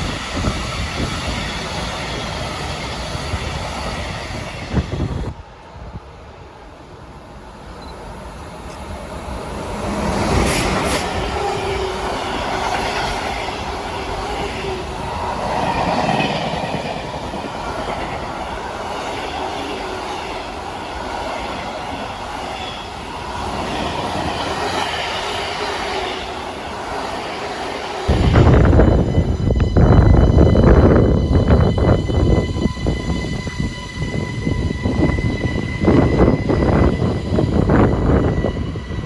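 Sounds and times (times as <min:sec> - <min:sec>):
loud low rumble: 0:28.1 - 0:31.5.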